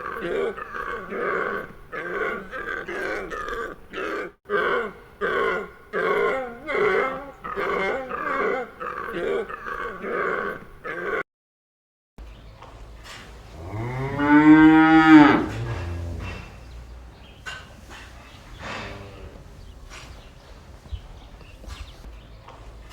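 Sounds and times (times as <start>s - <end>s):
animal making short calls: 15.0s - 19.6s.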